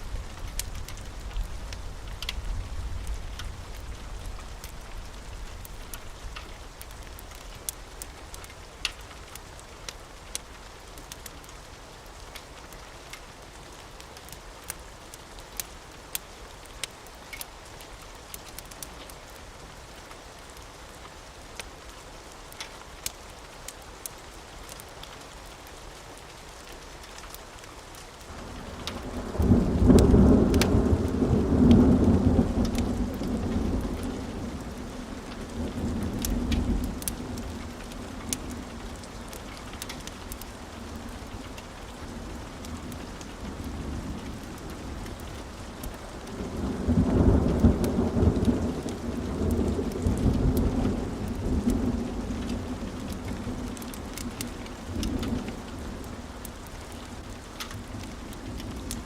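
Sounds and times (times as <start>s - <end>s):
steady rain: 0.0s - 59.0s
wood fire crackling: 0.0s - 59.0s
thunder rumbling: 28.4s - 56.1s.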